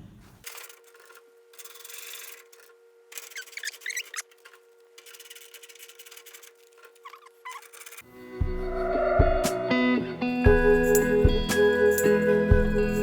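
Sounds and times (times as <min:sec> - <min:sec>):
short squeaks: 0:00.4 - 0:08.1
tumbling drum rubbing: 0:03.3 - 0:09.9
electric dryer humming: 0:08.0 - 0:13.0.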